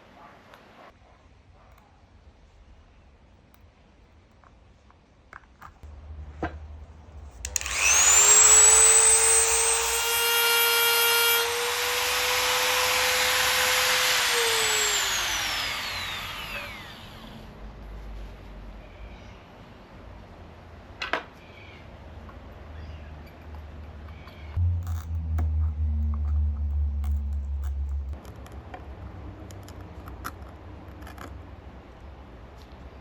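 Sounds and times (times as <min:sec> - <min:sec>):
rotary tool motor whining: 0:07.4 - 0:17.5.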